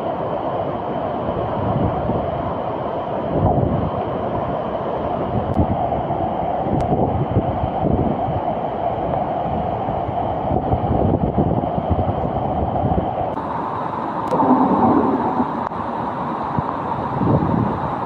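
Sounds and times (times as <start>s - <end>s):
wind buffeting microphone: 3.3s - 4.5s, 5.2s - 8.6s, 9.4s - 18.0s
steady rushing rumble: 13.3s - 18.0s.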